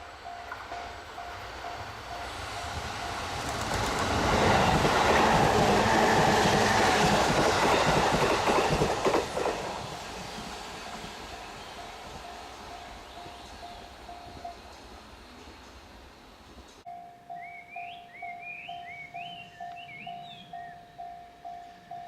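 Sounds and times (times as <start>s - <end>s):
freight train passing: 0.0s - 22.0s.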